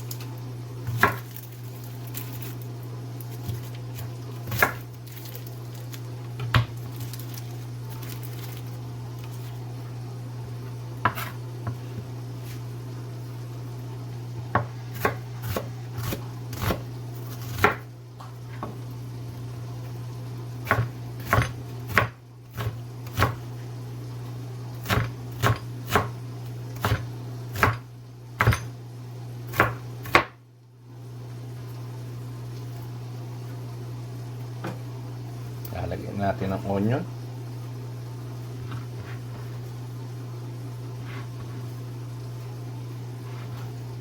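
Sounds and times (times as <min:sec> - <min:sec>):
knife chopping onion: 0:00.0 - 0:01.5, 0:03.3 - 0:07.3, 0:11.0 - 0:11.8, 0:14.5 - 0:17.9, 0:20.6 - 0:23.4, 0:24.8 - 0:26.2, 0:26.8 - 0:27.8, 0:28.4 - 0:28.7, 0:29.5 - 0:30.4
steady low hum: 0:00.0 - 0:44.0.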